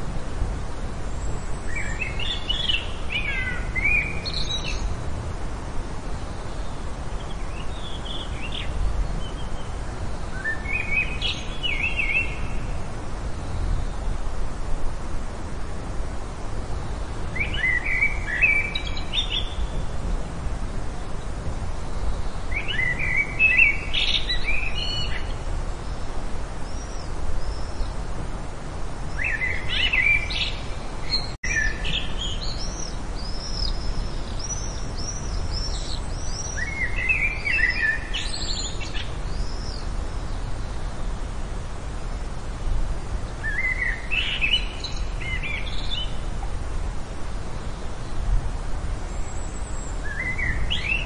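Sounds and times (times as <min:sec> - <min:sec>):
background hiss: 0:00.0 - 0:51.0
birds singing: 0:01.1 - 0:05.0, 0:06.2 - 0:12.8, 0:17.0 - 0:20.0, 0:21.2 - 0:28.0, 0:29.0 - 0:41.3, 0:43.1 - 0:46.3, 0:49.0 - 0:51.0.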